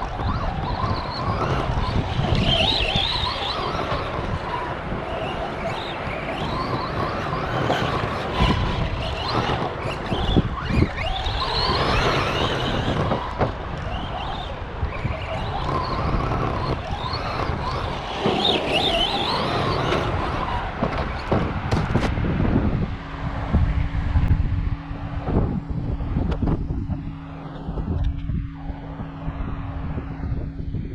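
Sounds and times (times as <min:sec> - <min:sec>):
sharp knocks of landings: 0:00.0 - 0:22.2
tyre noise: 0:00.0 - 0:22.8
electric motor whining: 0:00.0 - 0:30.9.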